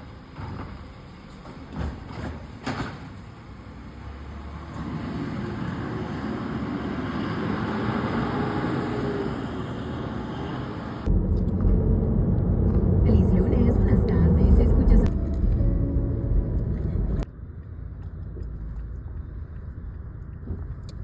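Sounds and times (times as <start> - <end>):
garbage truck engine running: 10.9 - 17.2.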